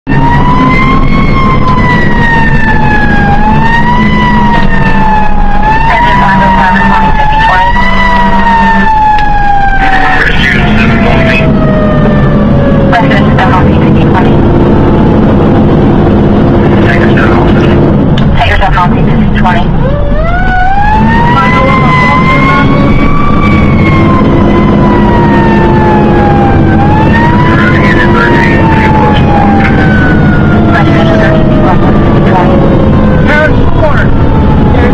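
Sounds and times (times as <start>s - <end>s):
siren wailing: 0.1s - 34.9s
low engine hum: 7.1s - 34.9s.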